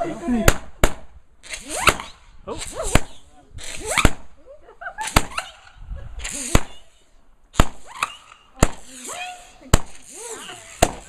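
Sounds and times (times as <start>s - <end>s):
firework bangs: 5.0s - 9.0s, 9.6s - 11.0s.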